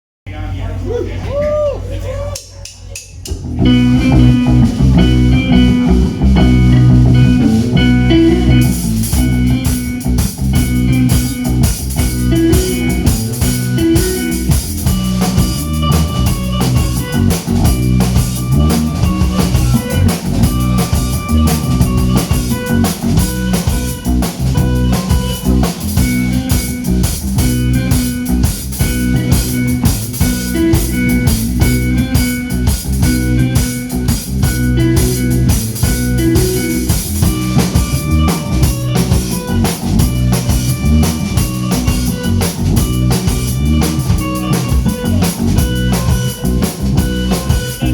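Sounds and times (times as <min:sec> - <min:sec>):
drum kit beat: 0:02.4 - 0:47.9
electric guitar: 0:03.3 - 0:47.9.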